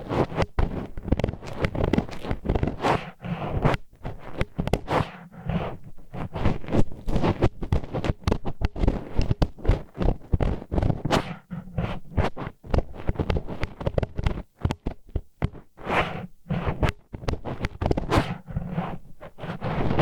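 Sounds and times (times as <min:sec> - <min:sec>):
chopsticks scraping in ear: 0:00.1 - 0:14.0, 0:15.8 - 0:20.0.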